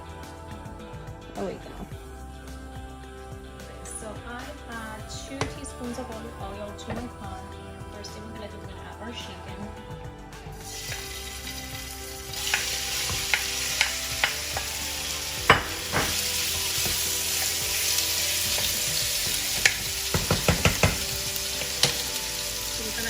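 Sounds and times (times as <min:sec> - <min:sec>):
chicken sizzling in frying pan: 0:10.7 - 0:23.0.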